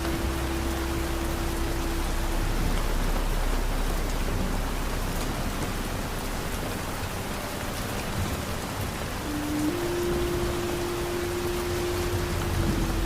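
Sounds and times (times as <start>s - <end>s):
low rumble: 0.0s - 13.0s
steady rain falling: 0.0s - 13.0s.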